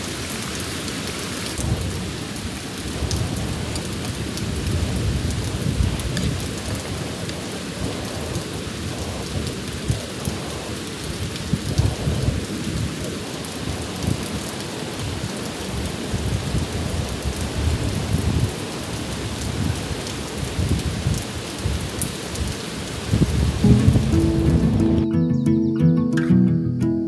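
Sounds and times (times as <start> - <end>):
rain falling: 0.0 - 25.1
low rumble: 23.1 - 25.0.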